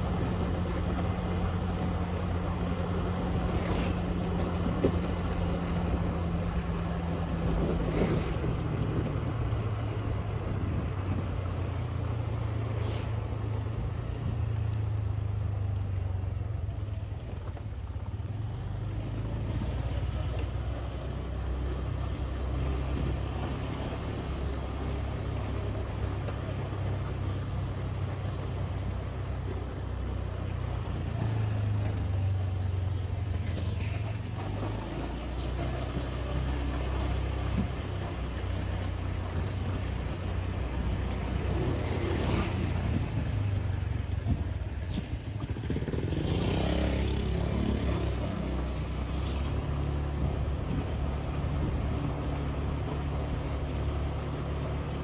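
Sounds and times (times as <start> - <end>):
road and wind noise: 0.0 - 55.0
motorbike engine running: 40.8 - 53.4.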